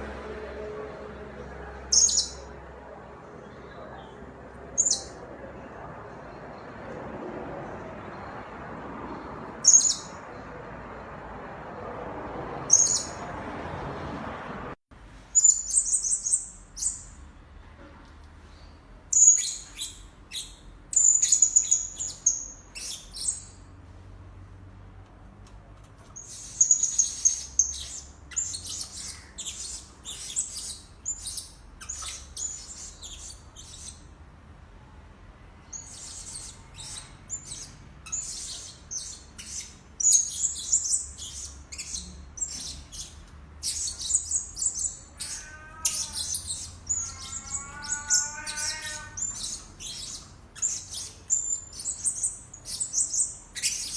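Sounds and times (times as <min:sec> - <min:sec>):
parrot shrill chirps: 0:19.1 - 0:23.6, 0:26.2 - 0:34.1, 0:35.7 - 0:53.9.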